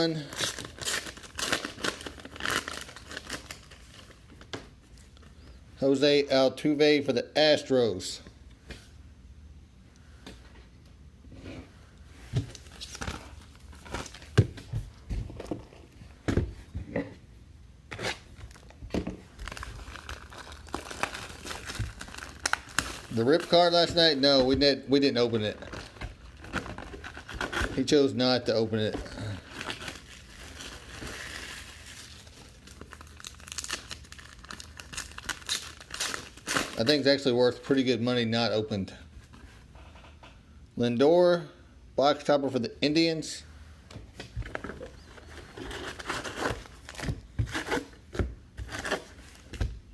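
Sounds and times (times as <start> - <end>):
wrappers crinkling and tearing: 0.0 - 4.2, 17.9 - 28.0, 29.0 - 37.2, 44.5 - 49.5.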